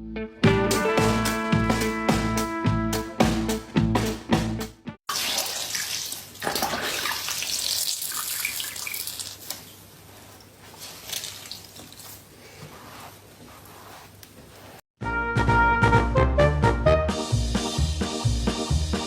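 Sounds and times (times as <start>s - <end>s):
music with plucked beat: 0.1s - 4.9s
tap water running into sink: 5.1s - 9.7s.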